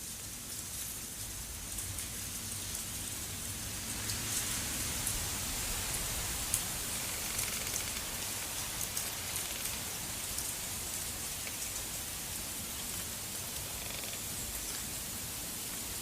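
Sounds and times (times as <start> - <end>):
snow hissing and ticking: 4.8 - 16.0.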